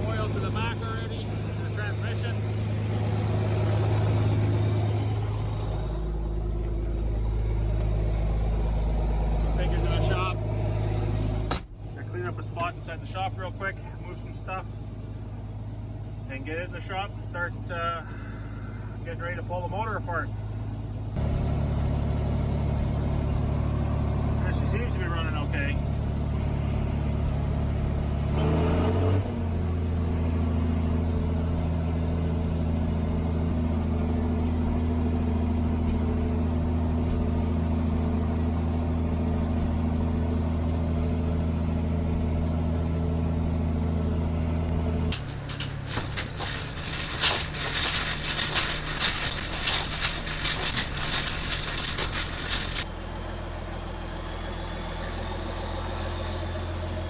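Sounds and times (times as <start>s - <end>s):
tractor diesel engine running: 0.0s - 57.0s
sharp rattling knocks: 45.0s - 52.9s.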